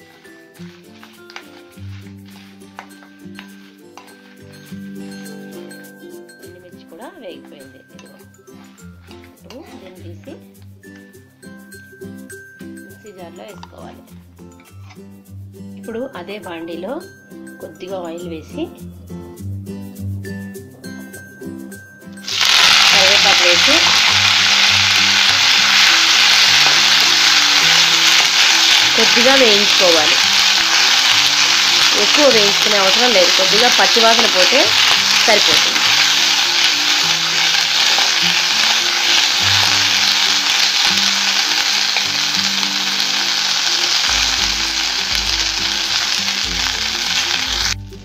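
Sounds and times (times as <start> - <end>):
leaves sizzling in hot oil: 0.0 - 5.4, 22.2 - 47.8
soft background music: 0.0 - 48.0
spoon stirring in pan: 0.7 - 4.9.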